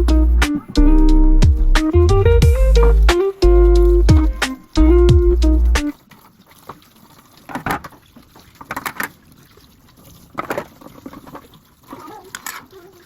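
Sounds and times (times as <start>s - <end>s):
background music: 0.0s - 5.9s
water splashing in sink: 5.4s - 13.0s.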